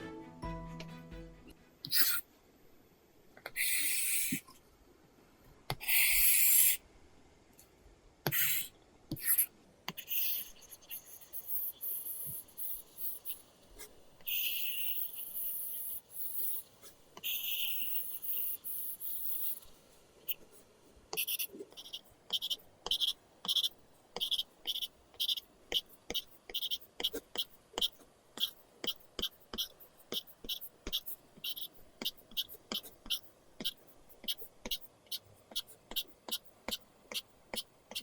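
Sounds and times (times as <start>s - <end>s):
stylus scratching on screen: 8.3s - 38.0s.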